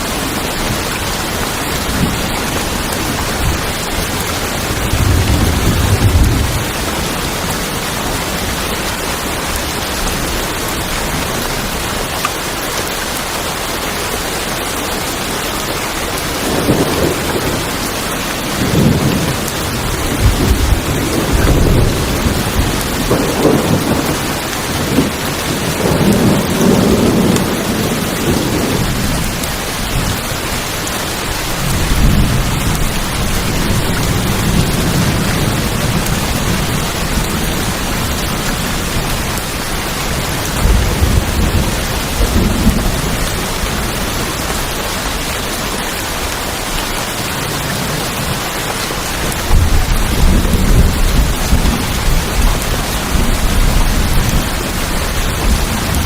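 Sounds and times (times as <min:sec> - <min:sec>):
heavy rain on tin roofs: 0:00.0 - 0:56.0
thunder rolling: 0:01.7 - 0:08.6, 0:16.3 - 0:30.2, 0:40.2 - 0:44.6, 0:49.2 - 0:56.0.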